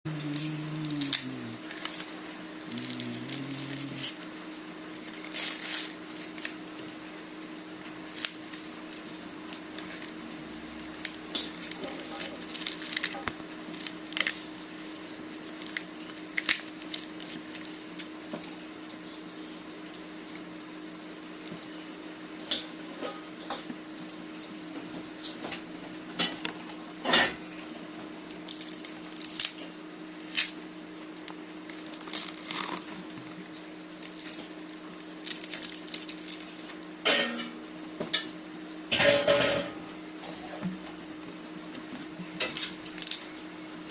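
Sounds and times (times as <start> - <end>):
bamboo shoot being peeled: 0.1 - 4.3, 5.0 - 6.6, 10.9 - 14.4, 28.4 - 30.6, 31.2 - 36.8, 42.4 - 43.4
low hum: 0.1 - 4.3.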